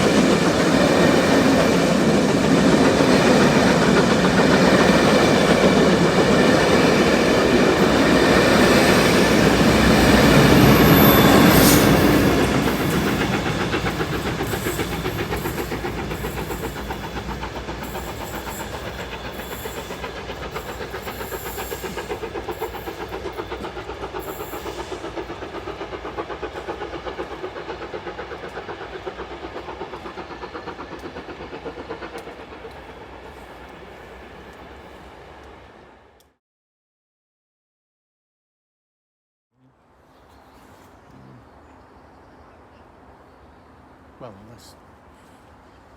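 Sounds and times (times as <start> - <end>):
wheels clicking on rails: 0.0 - 35.6
train passing: 0.0 - 36.3, 39.9 - 45.9.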